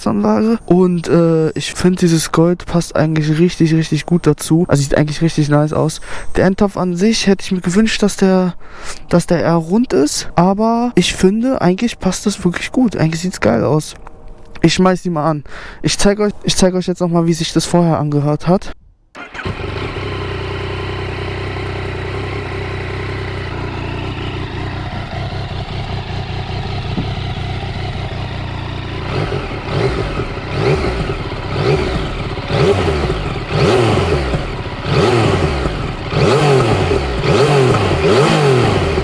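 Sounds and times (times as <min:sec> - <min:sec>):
motorcycle engine idling and revving: 0:19.2 - 0:39.0.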